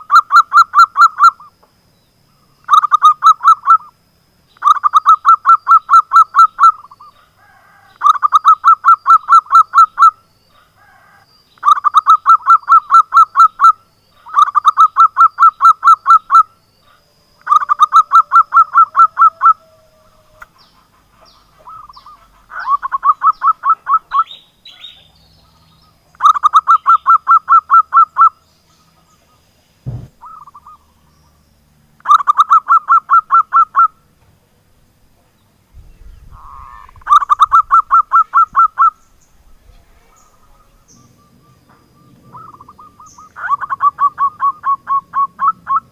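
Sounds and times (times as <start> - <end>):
dove calling in rapid notes: 0.0 - 1.5, 2.6 - 4.0, 4.6 - 29.4, 30.0 - 30.9, 32.0 - 34.0, 36.1 - 39.5, 40.1 - 45.9
dull thump: 29.8 - 30.2.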